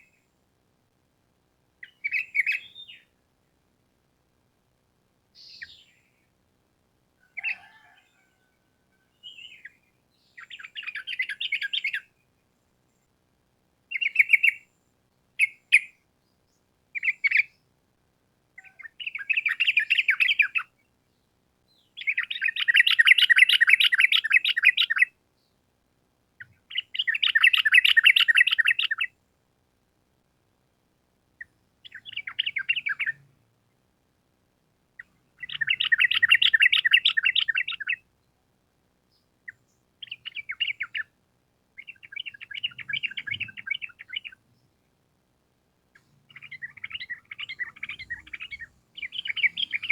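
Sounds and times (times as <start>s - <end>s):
bird chattering trills: 22.0s - 25.1s, 26.7s - 29.1s, 35.4s - 38.0s, 41.8s - 44.4s, 46.3s - 49.9s.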